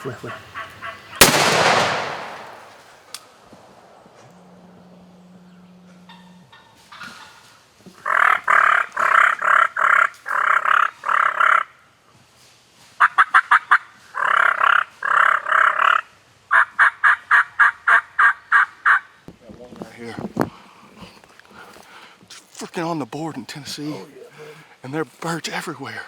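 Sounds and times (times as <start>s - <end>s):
turkeys gobbling: 6.1s - 11.6s, 13.0s - 19.0s.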